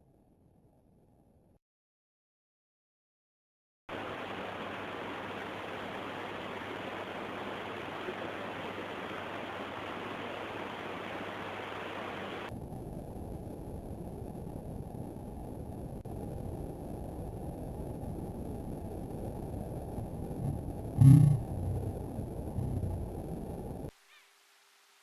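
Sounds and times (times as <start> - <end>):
heavy rain hissing: 3.9 - 12.5, 20.1 - 25.0
deep rumbling noise: 12.5 - 23.9.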